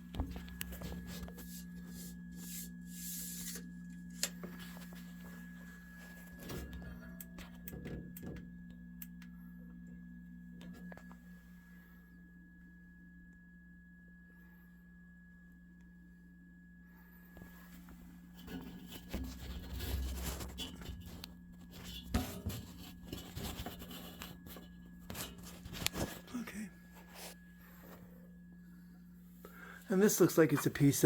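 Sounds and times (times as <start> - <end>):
steady low hum: 0.0 - 31.0
thin high whine: 0.0 - 31.0
handling noise rustling and clicks: 18.4 - 26.3.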